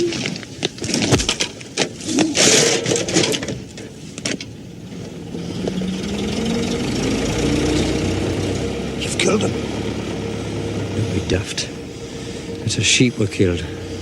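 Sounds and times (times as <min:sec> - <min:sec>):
vehicle engine speeding up: 0:04.8 - 0:14.0.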